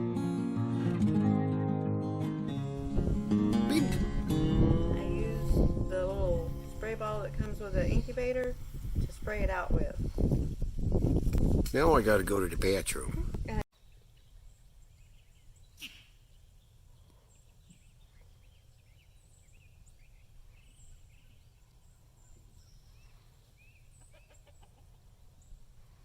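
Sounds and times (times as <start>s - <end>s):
low steady hum: 3.2s - 8.8s
birds chirping: 13.8s - 25.8s.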